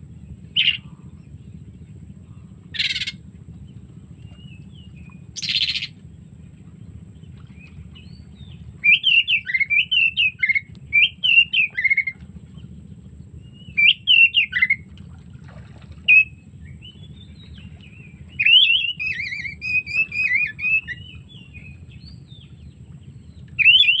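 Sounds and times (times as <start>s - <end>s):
steady low hum: 0.0s - 24.0s
bird singing whistled notes: 0.5s - 0.9s, 2.8s - 3.2s, 4.4s - 6.0s, 8.0s - 12.2s, 13.4s - 14.8s, 16.1s - 24.0s.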